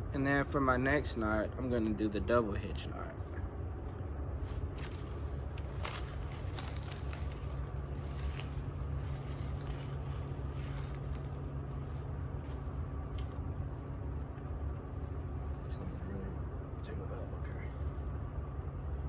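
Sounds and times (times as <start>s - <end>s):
faint rustles: 3.0s - 16.4s.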